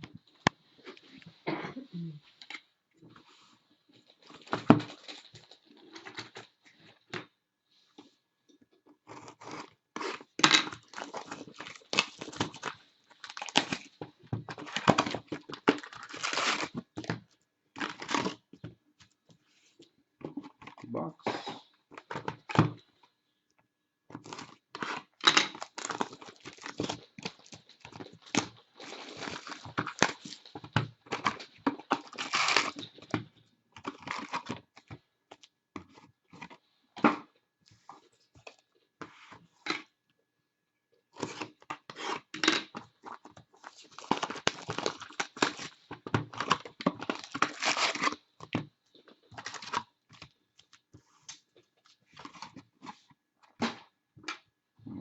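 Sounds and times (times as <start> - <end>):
shrink wrap and cardboard tearing: 9.3 - 13.9, 14.6 - 16.8, 24.2 - 33.0, 43.6 - 48.2.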